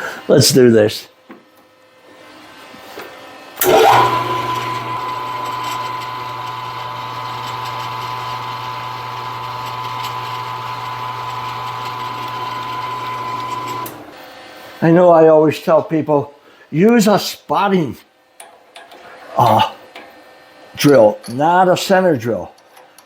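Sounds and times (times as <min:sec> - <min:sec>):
low motor hum: 0:03.6 - 0:14.1
milling machine spindle whining: 0:03.6 - 0:14.1.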